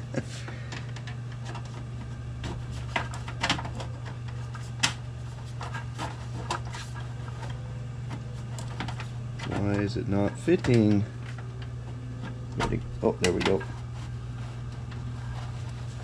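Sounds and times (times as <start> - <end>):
low hum: 0.0 - 16.0
drive tray clicking into computer case: 8.2 - 13.7.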